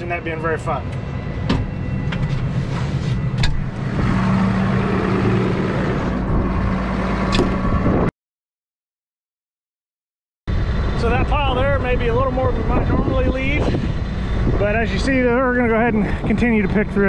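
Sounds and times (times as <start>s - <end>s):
tractor diesel engine under load: 2.4s - 8.0s, 10.5s - 17.0s.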